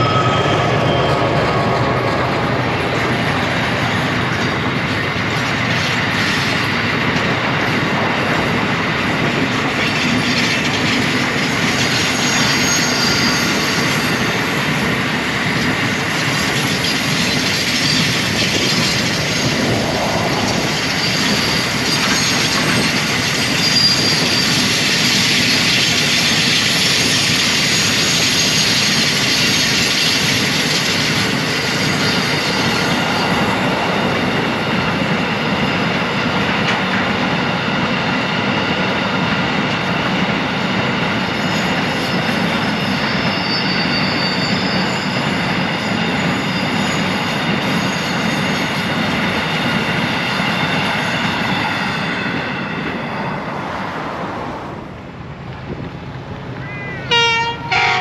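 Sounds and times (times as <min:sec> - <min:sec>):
high-pitched wheel squealing: 0:00.0 - 0:06.6, 0:09.4 - 0:15.0, 0:15.9 - 0:36.0, 0:40.6 - 0:54.2
train wagons rolling on rails: 0:00.0 - 0:58.0.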